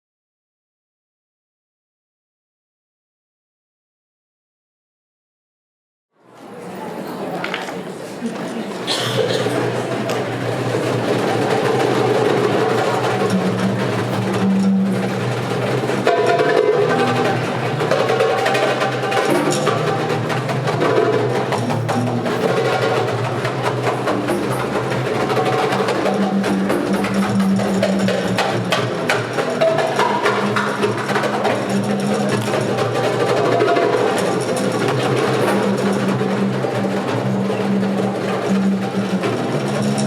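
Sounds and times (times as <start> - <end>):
hand drums playing rhythm: 8.9 - 40.0.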